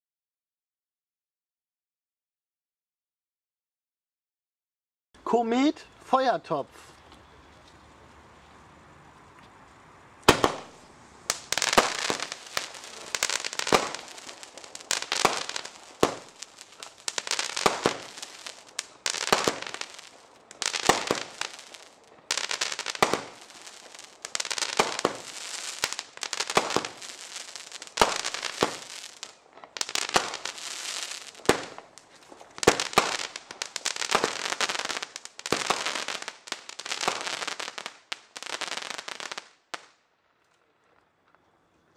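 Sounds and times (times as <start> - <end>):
firework crackling: 8.0 - 40.0
firework shot bangs: 10.3 - 36.1.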